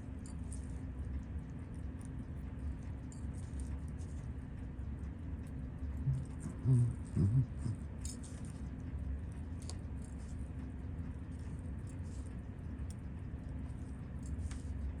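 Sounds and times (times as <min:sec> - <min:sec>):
low electrical hum: 0:00.0 - 0:15.0
low voice humming: 0:06.0 - 0:07.9.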